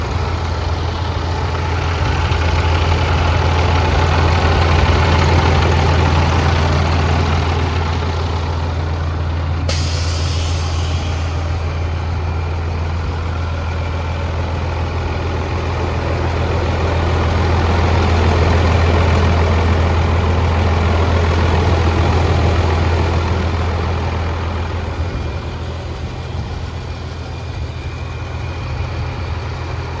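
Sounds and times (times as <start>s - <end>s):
diesel engine idling: 0.0s - 30.0s
air hiss: 9.7s - 11.8s.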